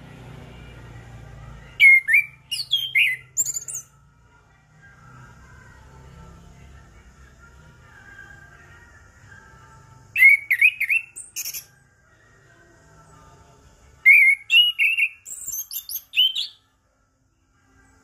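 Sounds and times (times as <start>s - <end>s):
thrush singing whistled phrases: 1.7s - 3.9s, 10.1s - 11.8s, 14.0s - 16.6s.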